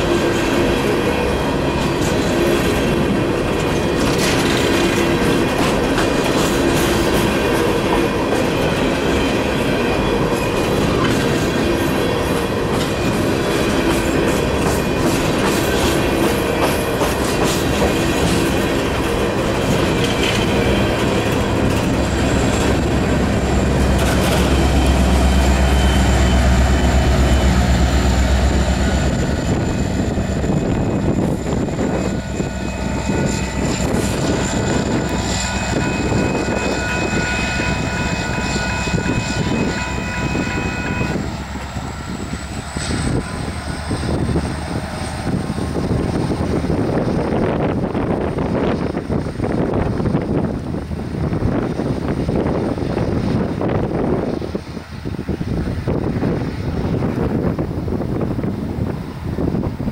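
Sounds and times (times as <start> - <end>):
deep locomotive engine rumble: 0.0 - 59.9
train wheels clickety-clack: 0.0 - 59.9
wheel squeal: 19.7 - 46.4.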